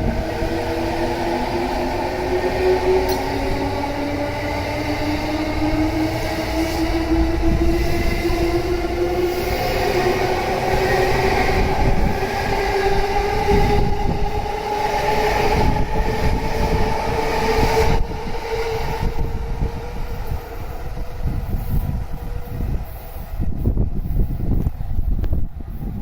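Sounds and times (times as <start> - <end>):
train traction motors whining: 0.0 - 18.9
train wheels rumbling on rail: 0.0 - 26.0.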